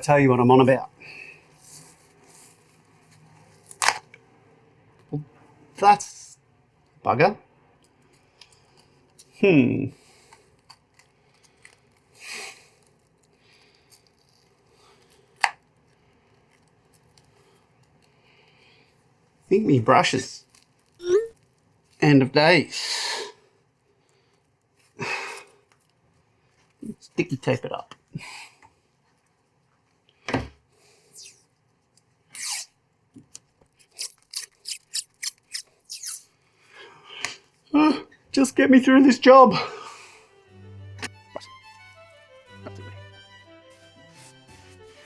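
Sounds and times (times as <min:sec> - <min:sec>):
faint rustling and handling: 0:00.0 - 0:03.9, 0:07.8 - 0:22.4, 0:23.5 - 0:39.2
sticky tape tearing off roll: 0:31.0 - 0:31.5, 0:32.3 - 0:32.8, 0:33.8 - 0:36.4.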